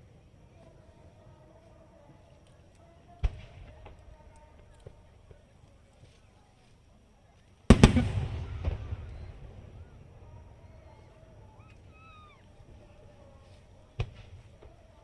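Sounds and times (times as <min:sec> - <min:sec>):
fireworks bursting: 0:07.7 - 0:15.0.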